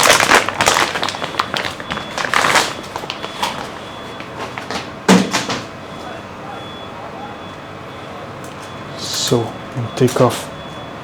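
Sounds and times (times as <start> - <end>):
plastic packaging crinkling: 0.0 - 4.8.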